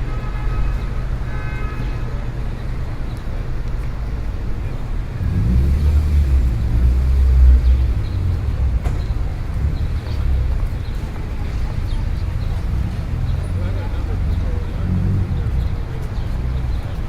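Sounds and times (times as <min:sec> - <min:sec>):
traffic rumble: 0:00.0 - 0:17.0
vehicle engine passing close: 0:05.0 - 0:16.8.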